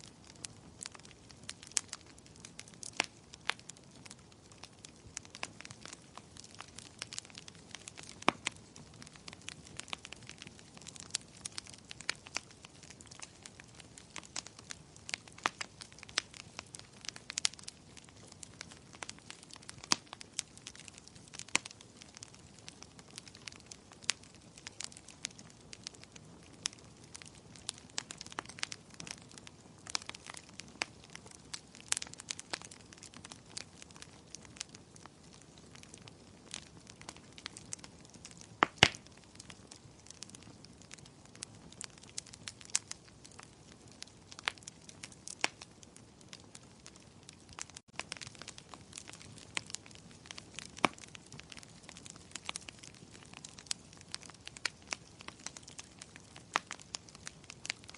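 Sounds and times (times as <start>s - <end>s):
fire pops and snaps: 0.0s - 57.9s.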